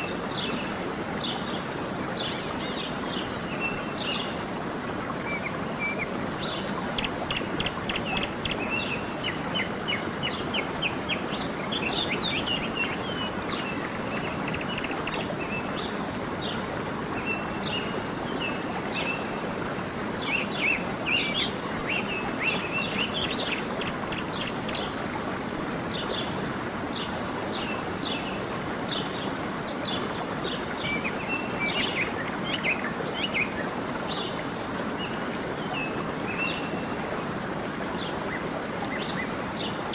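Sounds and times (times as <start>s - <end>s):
songbirds chirping and trilling: 0.0s - 25.0s
stream running: 0.0s - 39.9s.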